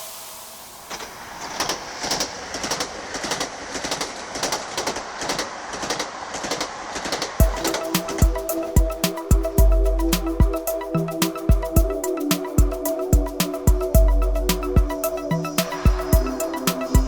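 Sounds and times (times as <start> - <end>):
music with heavy beat: 7.4 - 17.0.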